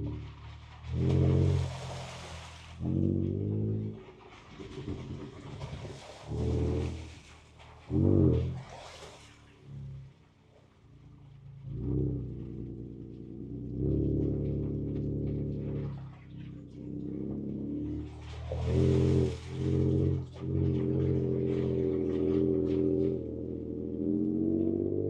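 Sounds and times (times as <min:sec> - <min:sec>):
engine heard from inside cab: 0:00.0 - 0:25.0.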